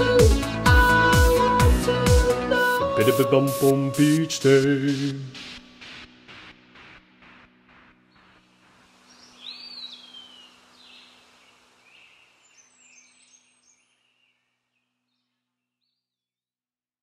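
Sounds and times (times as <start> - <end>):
outdoor hiss: 3.0 - 14.4
birds calling: 8.2 - 15.0.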